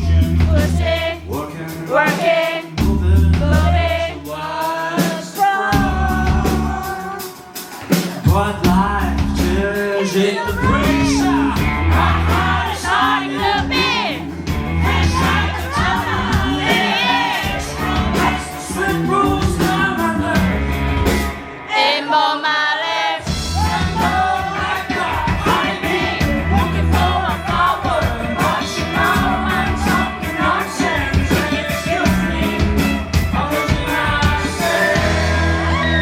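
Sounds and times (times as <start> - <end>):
rock band playing live: 0.0 - 21.9, 23.2 - 36.0
lead vocal singing: 0.0 - 36.0.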